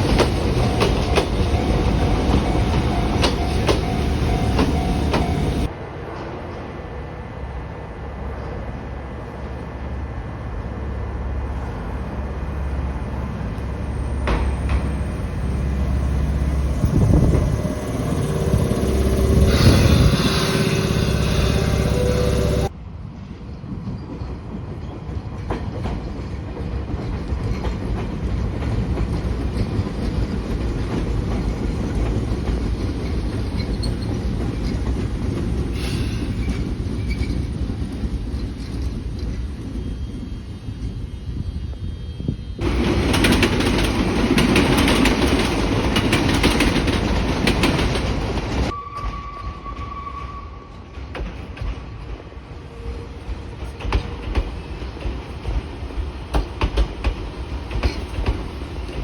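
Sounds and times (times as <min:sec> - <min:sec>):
electric train running on track: 0:00.0 - 0:08.8, 0:09.5 - 0:50.1, 0:50.7 - 0:59.0
train motor whine: 0:13.6 - 0:22.7.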